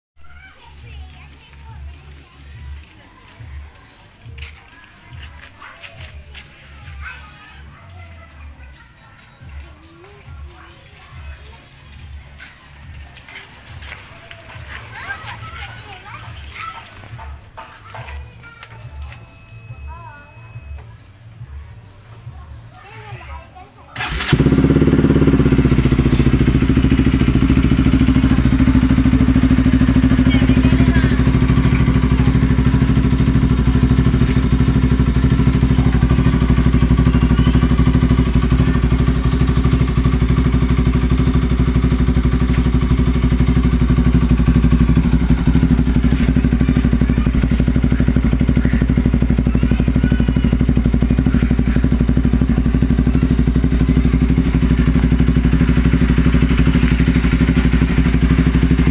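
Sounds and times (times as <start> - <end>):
motorcycle engine idling: 24.0 - 58.9.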